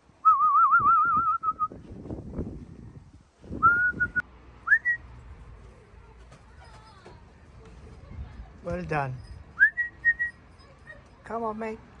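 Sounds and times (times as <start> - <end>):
person whistling: 0.2 - 1.8, 3.6 - 5.0, 9.6 - 10.4.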